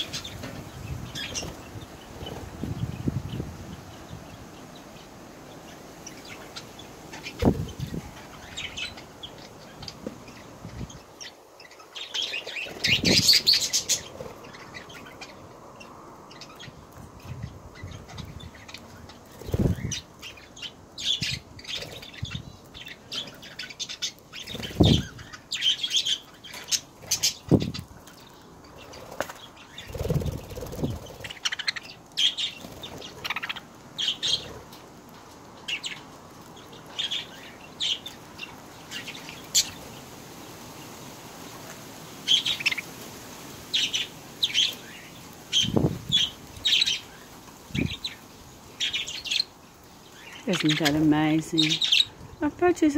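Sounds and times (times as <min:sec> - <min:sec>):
budgerigars chirping: 0:06.1 - 0:15.4, 0:17.8 - 0:27.9, 0:28.7 - 0:34.6, 0:36.7 - 0:39.8, 0:43.7 - 0:52.2
wings flapping: 0:19.3 - 0:20.0, 0:24.4 - 0:25.3, 0:28.8 - 0:31.7, 0:32.4 - 0:33.6.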